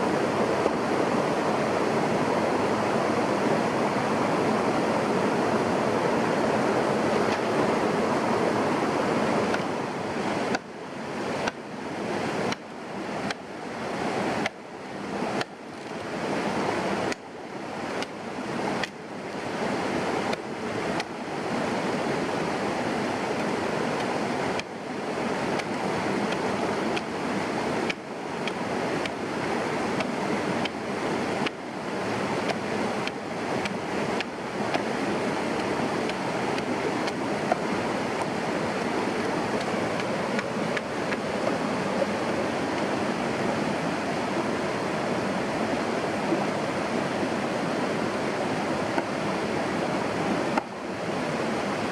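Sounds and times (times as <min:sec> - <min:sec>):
rushing water-like noise: 0:00.0 - 0:51.9.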